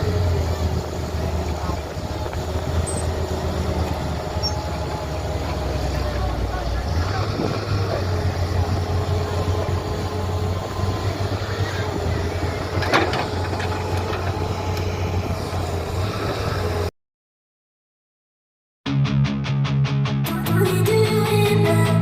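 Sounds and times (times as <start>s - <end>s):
diesel engine rumbling: 0.0s - 16.9s.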